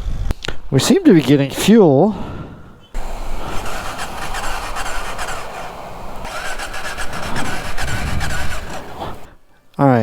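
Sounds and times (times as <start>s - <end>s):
motorcycle starter cranking: 3.0s - 9.3s.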